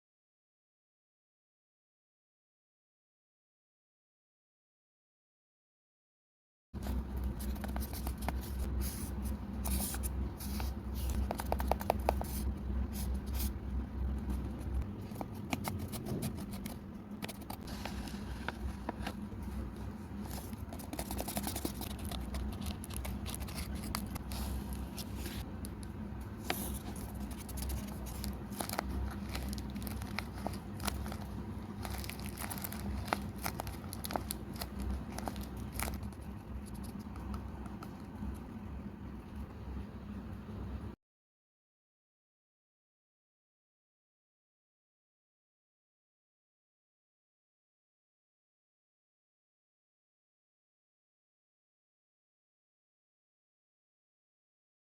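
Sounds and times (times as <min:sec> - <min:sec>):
paper crinkling and scraping: 0:06.8 - 0:13.5, 0:14.1 - 0:38.4
steady low hum: 0:06.8 - 0:41.0.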